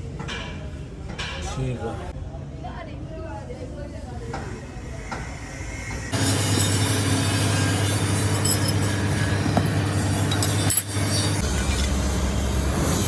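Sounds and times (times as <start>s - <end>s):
mechanical running hum: 5.4s - 13.0s.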